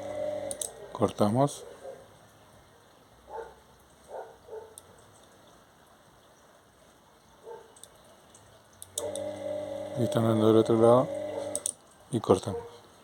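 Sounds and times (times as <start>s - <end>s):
low steady hiss: 0.0s - 13.0s
dog barking faintly: 0.7s - 2.2s, 3.3s - 5.0s, 7.4s - 7.8s, 12.4s - 12.9s.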